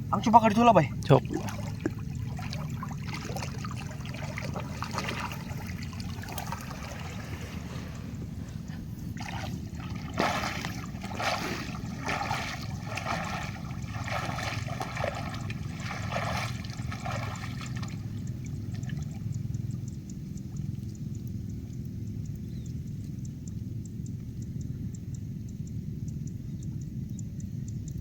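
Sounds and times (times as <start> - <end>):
water sloshing and splashing: 0.1 - 19.8.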